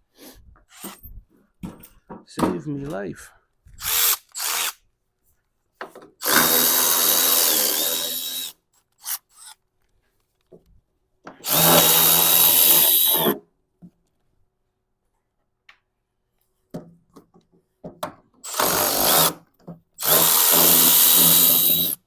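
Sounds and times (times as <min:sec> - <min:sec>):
power drill whining: 0:03.8 - 0:04.8, 0:06.2 - 0:09.6, 0:11.4 - 0:13.4, 0:18.4 - 0:19.4, 0:20.0 - 0:22.0.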